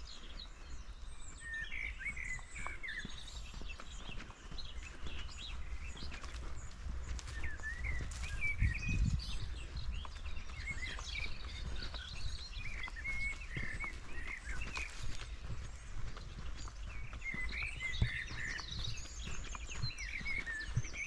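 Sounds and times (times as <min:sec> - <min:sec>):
footsteps on forest floor: 0:00.0 - 0:21.0
small birds chirping: 0:00.0 - 0:21.0.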